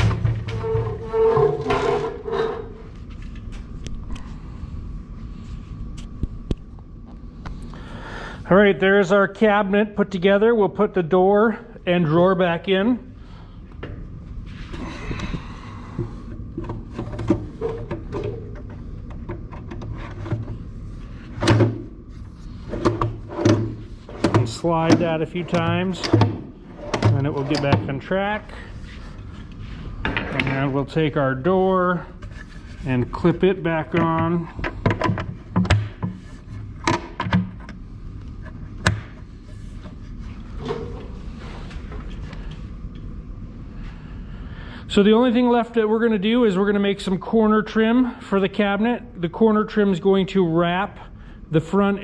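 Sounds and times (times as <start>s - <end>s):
low hum: 10.9s - 45.0s.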